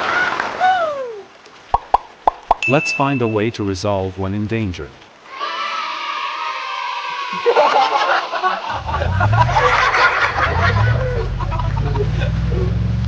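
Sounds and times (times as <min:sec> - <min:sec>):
giggly voice-like sound effects: 0:08.7 - 0:12.8.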